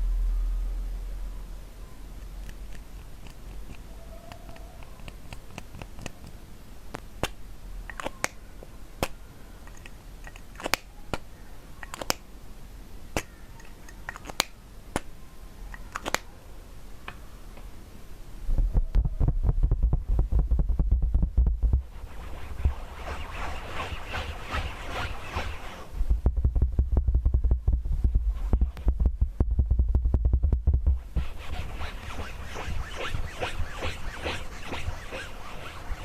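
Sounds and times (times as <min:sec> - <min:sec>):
faint low hum: 0:00.0 - 0:36.0
crisp clicks and taps: 0:02.2 - 0:08.4, 0:09.0 - 0:12.2, 0:13.2 - 0:15.1, 0:15.7 - 0:16.3.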